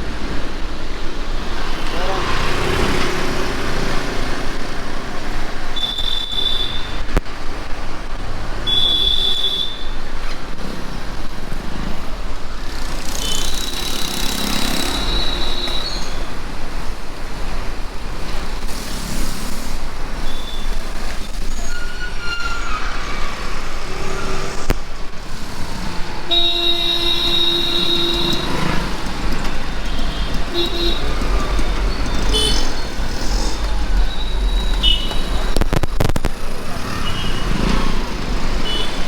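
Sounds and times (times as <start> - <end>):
street traffic: 0.0 - 39.0
sharp crackle: 25.4 - 37.9
wind rumble on microphone: 28.8 - 36.8.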